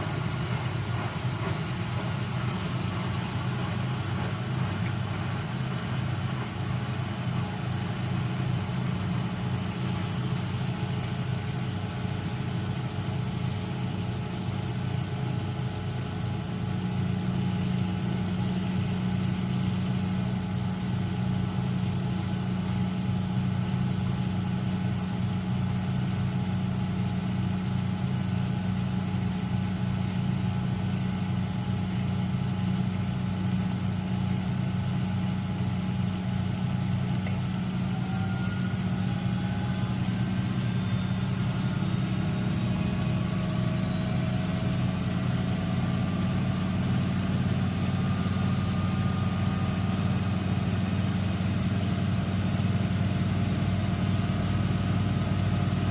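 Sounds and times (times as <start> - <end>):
washing machine motor hum: 0.0 - 24.0, 24.6 - 55.9
spin whine rising in pitch: 37.4 - 55.9.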